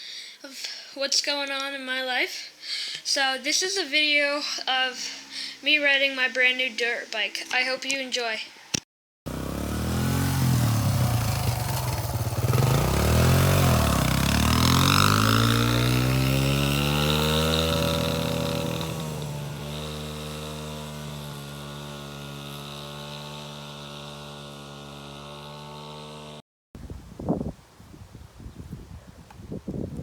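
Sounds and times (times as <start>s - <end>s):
dirt bike engine accelerating: 9.3s - 26.4s.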